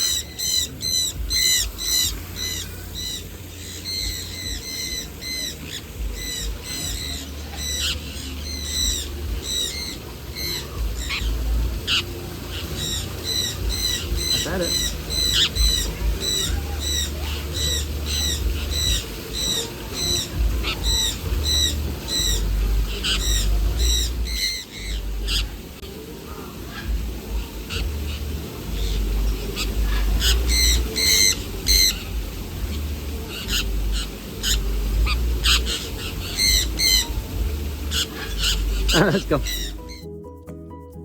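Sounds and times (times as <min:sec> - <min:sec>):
bird squawking: 0:00.0 - 0:40.1
low rumble: 0:26.7 - 0:40.0.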